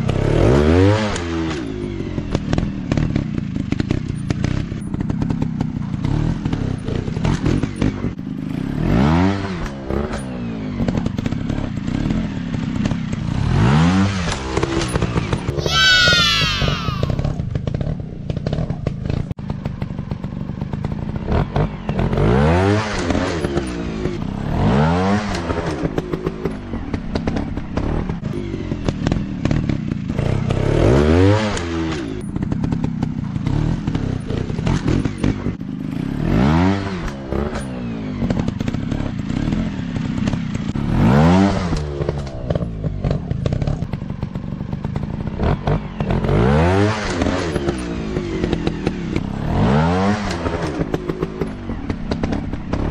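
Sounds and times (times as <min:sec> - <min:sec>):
dirt bike engines revving: 0:13.7 - 0:17.4
clatter and thumps: 0:50.2 - 0:52.9.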